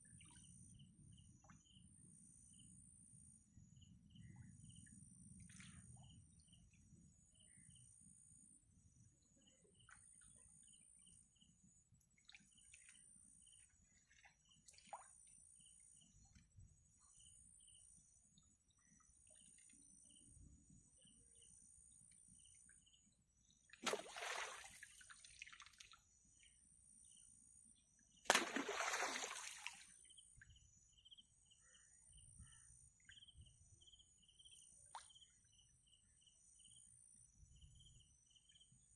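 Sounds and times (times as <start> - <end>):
water splashes: 23.8 - 26.0, 28.3 - 30.0
insects chirring: 28.4 - 31.8
faint bird chirps: 29.2 - 38.9.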